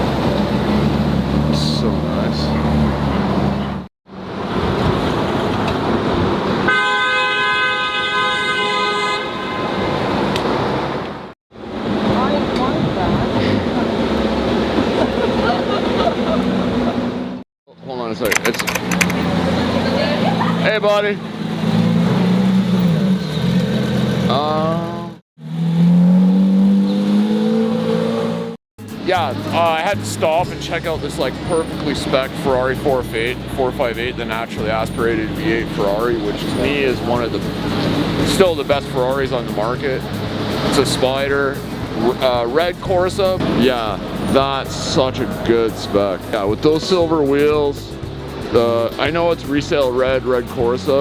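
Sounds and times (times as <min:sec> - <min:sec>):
car engine revving: 0:00.0 - 0:06.7, 0:18.7 - 0:51.0
street traffic: 0:00.0 - 0:51.0
vehicle horn blast: 0:06.7 - 0:10.3.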